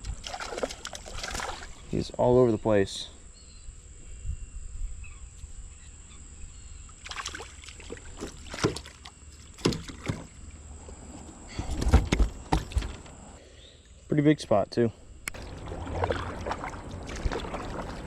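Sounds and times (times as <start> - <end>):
fish thrashing thumps: 8.2 - 10.4
knocks and clatter on a kayak: 8.2 - 10.4, 11.6 - 13.2.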